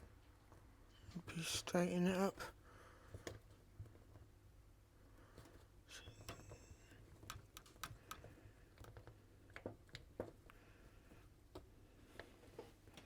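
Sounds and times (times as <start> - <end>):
small clicks on metal: 6.0 - 10.6.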